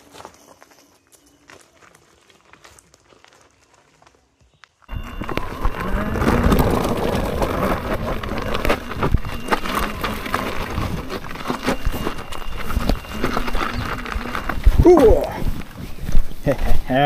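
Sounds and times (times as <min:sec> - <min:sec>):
wind and tyre rumble: 0:04.9 - 0:17.0.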